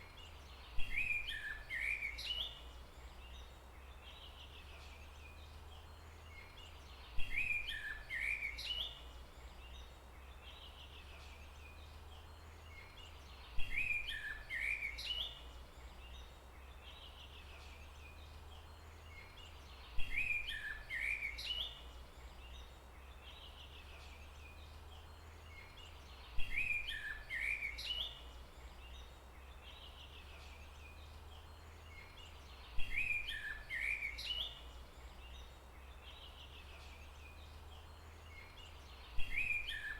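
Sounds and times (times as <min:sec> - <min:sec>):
bird call with chirping notes: 0:38.3 - 0:39.9.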